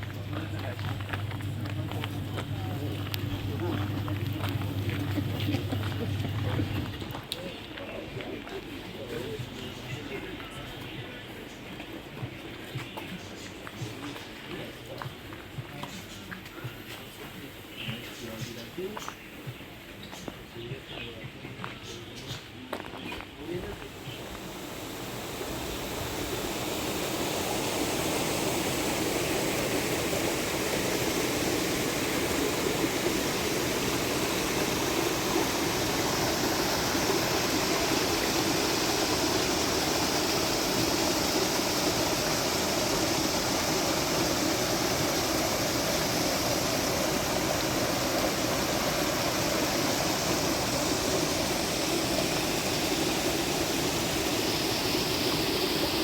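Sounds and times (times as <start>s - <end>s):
flowing water rushing: 0.0s - 7.1s, 23.8s - 56.0s.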